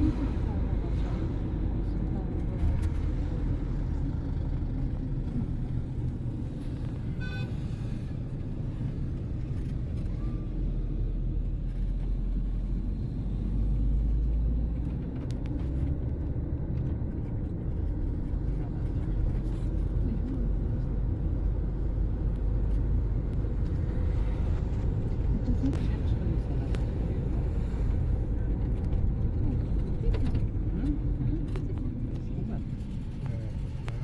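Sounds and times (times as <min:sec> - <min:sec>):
car driving rumble: 0:00.0 - 0:34.0.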